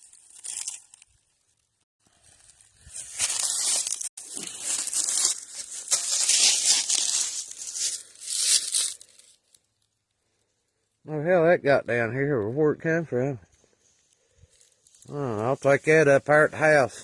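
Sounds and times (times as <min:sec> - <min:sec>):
footsteps crunching dry leaves: 0:00.0 - 0:01.2, 0:02.0 - 0:09.6.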